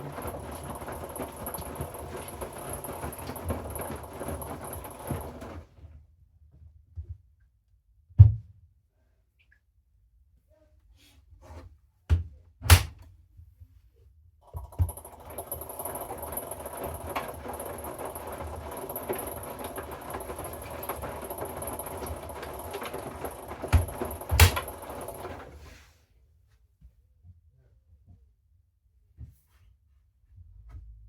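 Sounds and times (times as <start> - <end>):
knocks from tumbling load: 0.0 - 5.7, 14.8 - 25.6
washing machine drum tumbling: 0.0 - 5.8, 14.6 - 25.7.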